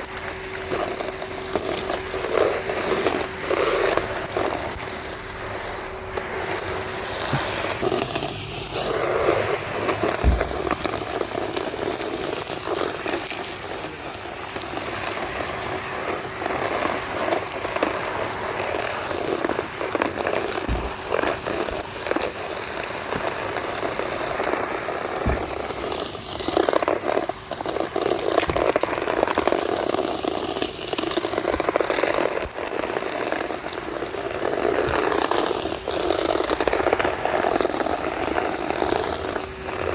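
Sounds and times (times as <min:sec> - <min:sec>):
debris crackling through hose: 0:00.0 - 0:39.9
vacuum cleaner running: 0:00.0 - 0:39.9
dull knocks: 0:10.1 - 0:11.0, 0:20.7 - 0:21.8, 0:25.2 - 0:26.0.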